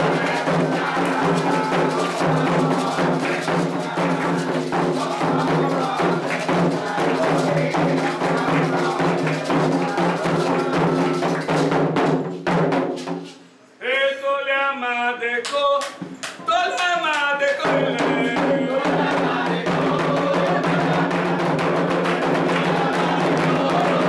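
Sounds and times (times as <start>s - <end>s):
person singing a chant: 0.0s - 11.4s, 17.4s - 24.0s
group chanting: 0.0s - 11.8s, 16.4s - 24.0s
hand drumming: 0.0s - 13.1s.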